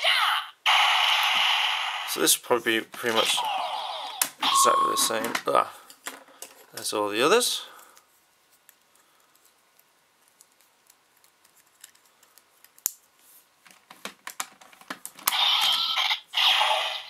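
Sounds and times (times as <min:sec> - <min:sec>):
loud electronic toy sound: 0:00.6 - 0:02.2, 0:03.2 - 0:05.2, 0:15.3 - 0:17.0.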